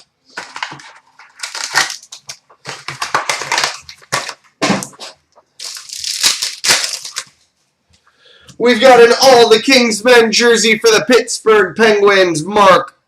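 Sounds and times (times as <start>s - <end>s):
wrapping tearing and crinkling: 0.0s - 7.4s.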